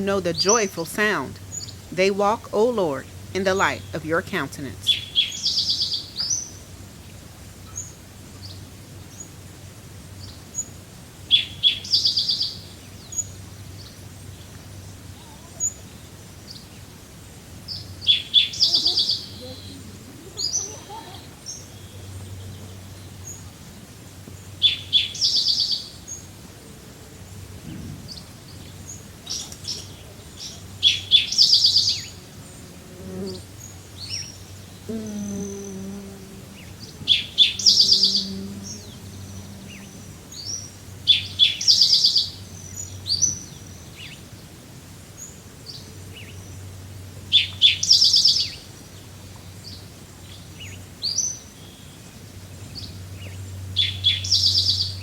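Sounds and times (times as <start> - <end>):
faint low drone: 32.0 - 41.1.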